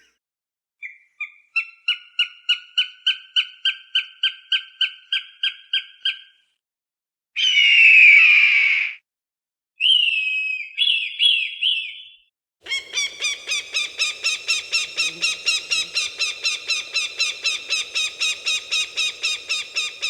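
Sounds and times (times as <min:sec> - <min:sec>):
falcon cackling calls: 0:12.7 - 0:20.0
falcon calling: 0:12.7 - 0:20.0.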